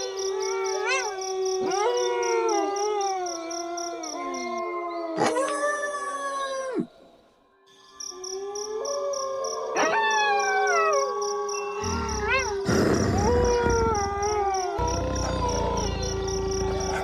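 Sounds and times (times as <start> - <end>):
crickets chirping: 0.0 - 4.5, 10.5 - 17.0
wolves howling: 0.0 - 7.0, 8.3 - 17.0.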